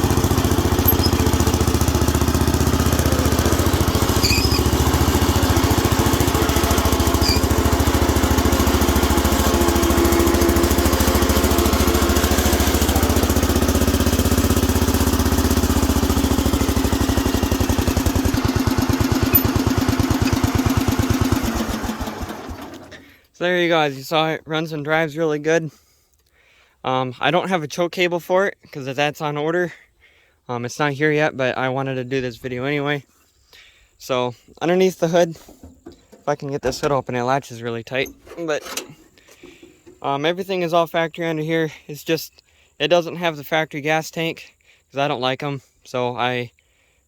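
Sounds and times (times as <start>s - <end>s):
small tractor engine running: 0.0s - 23.1s.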